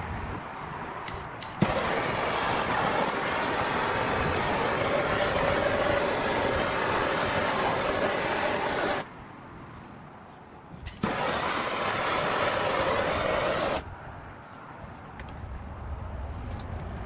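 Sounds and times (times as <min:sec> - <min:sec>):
blade on grinder hissing: 0:01.1 - 0:09.1, 0:10.9 - 0:13.8.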